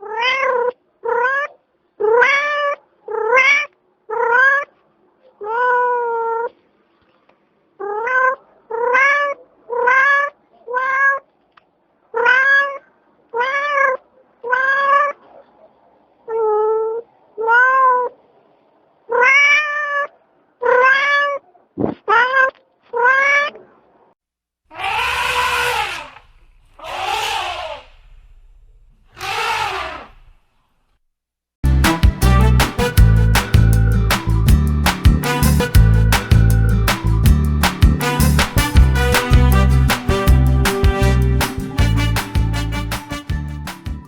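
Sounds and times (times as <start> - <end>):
harsh cat call: 24.7 - 28.1, 29.2 - 30.2.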